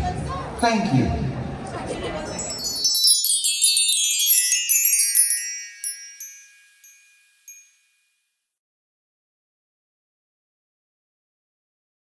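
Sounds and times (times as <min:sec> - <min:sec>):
high tinkling chimes: 0:02.3 - 0:07.9.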